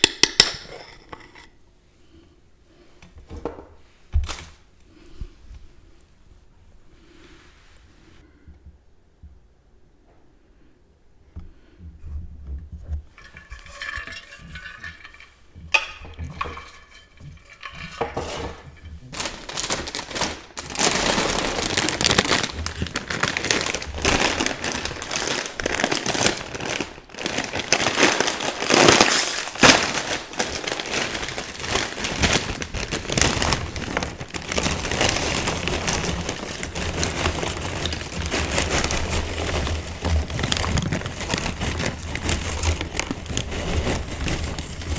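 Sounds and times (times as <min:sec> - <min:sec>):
crinkling and clinking handling: 0:13.0 - 0:44.9
chips being chewed: 0:27.7 - 0:43.7.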